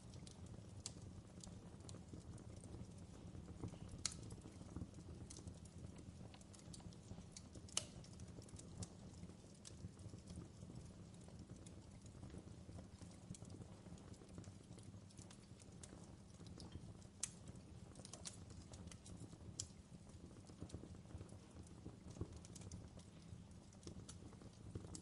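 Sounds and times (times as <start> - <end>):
fireplace fire crackling: 0.0 - 25.0.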